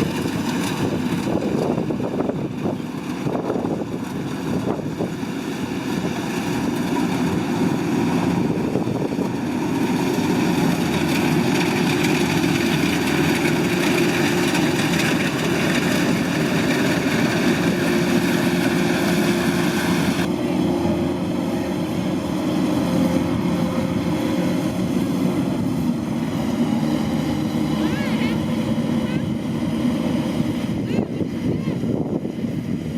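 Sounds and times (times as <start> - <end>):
hiss and rattle of threshing gear: 0.0 - 20.3
diesel engine running: 0.0 - 32.9.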